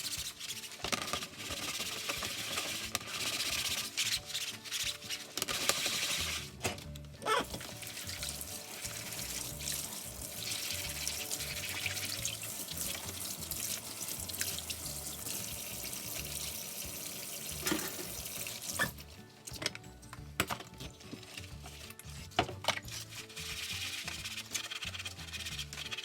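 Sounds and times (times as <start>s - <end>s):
tap running water into sink: 7.6s - 19.0s.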